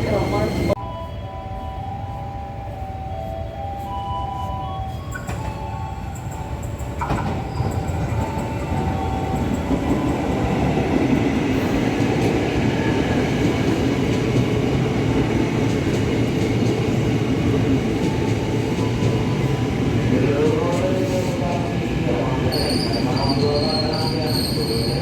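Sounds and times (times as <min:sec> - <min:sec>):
train wheels rumbling on rails: 0:05.1 - 0:25.0.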